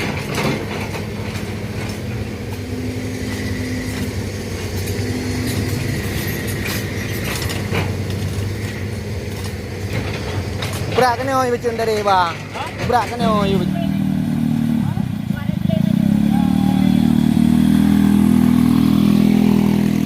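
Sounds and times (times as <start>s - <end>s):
diesel engine running: 0.0s - 20.0s
high whine: 1.2s - 12.0s.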